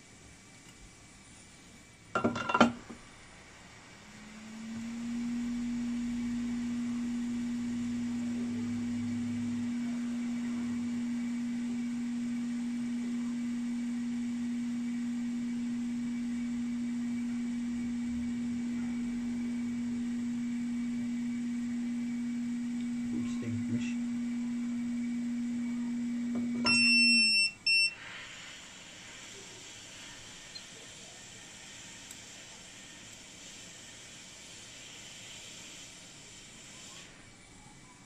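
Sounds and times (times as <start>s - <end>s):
low electronic tone: 4.0s - 28.0s.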